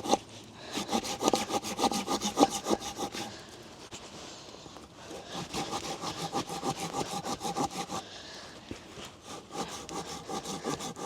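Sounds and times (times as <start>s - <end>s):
hand saw cutting wood: 0.0s - 3.4s, 5.1s - 8.1s, 9.2s - 11.0s.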